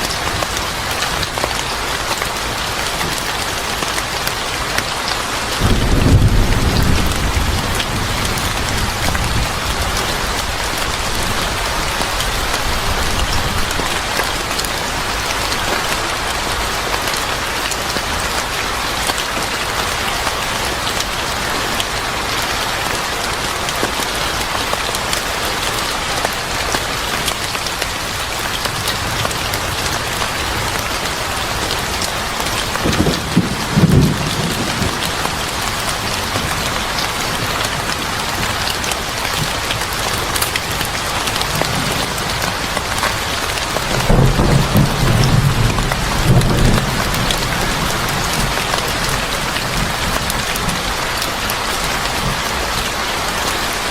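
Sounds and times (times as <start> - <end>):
heavy rain falling: 0.0 - 53.9
low roll of thunder: 5.6 - 10.3, 32.7 - 36.6, 43.9 - 50.5.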